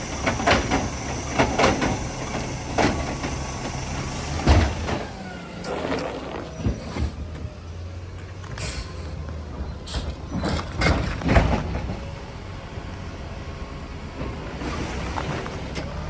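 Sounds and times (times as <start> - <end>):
garbage truck engine running: 0.0 - 16.0.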